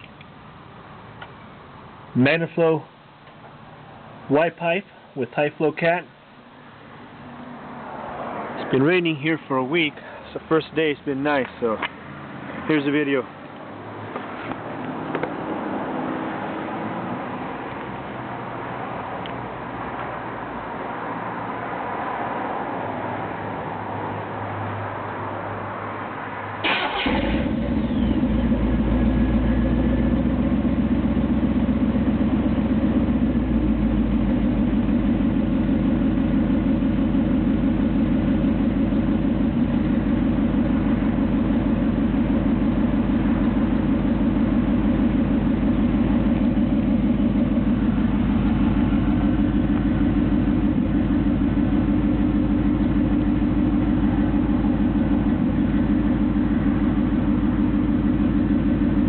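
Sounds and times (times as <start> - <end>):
engine firing up: 26.6 - 55.9
engine idling: 26.6 - 59.0.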